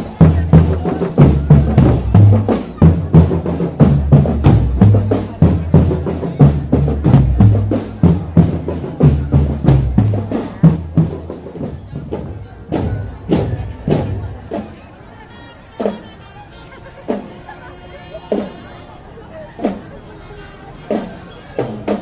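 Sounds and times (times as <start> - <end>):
bass drums: 0.0 - 14.8
snare drums: 0.0 - 14.9, 15.7 - 16.3, 16.9 - 17.6, 18.2 - 18.7, 19.5 - 22.0.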